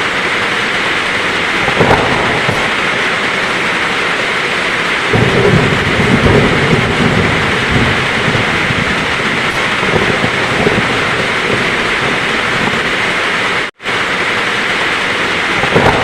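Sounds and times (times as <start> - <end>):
heavy rain falling: 0.0 - 16.0
low rumble: 1.0 - 13.6.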